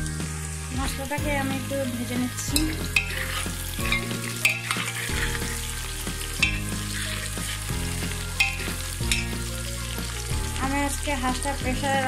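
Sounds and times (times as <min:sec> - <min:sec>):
food sizzling in hot oil: 0:00.0 - 0:12.0
spatula scraping metal pot: 0:02.4 - 0:09.4.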